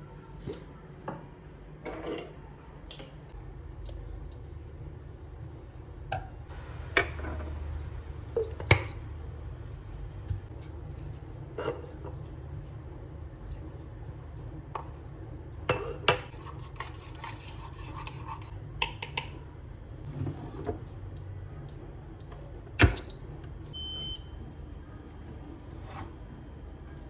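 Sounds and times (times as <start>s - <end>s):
short high beeps: 20.8s - 24.2s.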